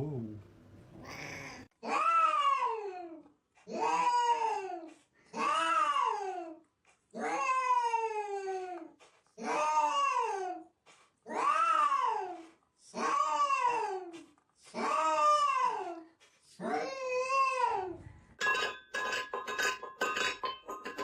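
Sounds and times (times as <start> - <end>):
cat yowling: 1.0 - 2.9, 3.7 - 4.6, 11.3 - 12.3.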